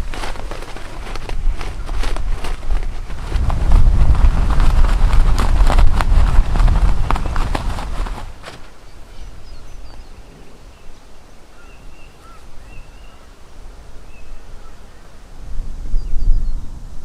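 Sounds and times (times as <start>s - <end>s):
steady low rumble: 0.9s - 8.4s
bird chirps: 8.8s - 13.4s, 14.0s - 15.2s.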